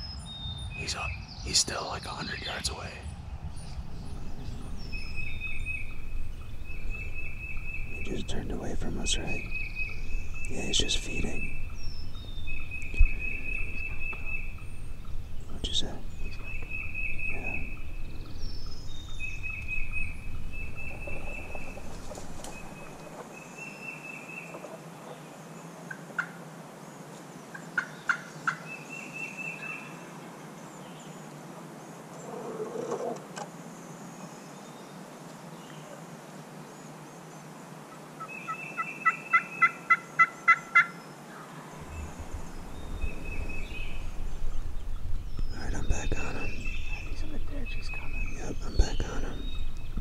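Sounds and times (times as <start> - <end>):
wild turkey yelping: 38.2 - 41.0.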